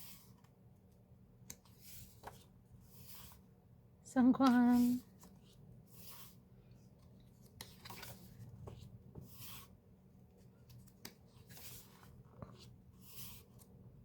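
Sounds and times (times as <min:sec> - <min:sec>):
book pages rustling: 0:00.0 - 0:03.4, 0:04.4 - 0:13.8
soft clicks of pages: 0:00.3 - 0:02.5, 0:06.7 - 0:08.9, 0:10.6 - 0:12.7.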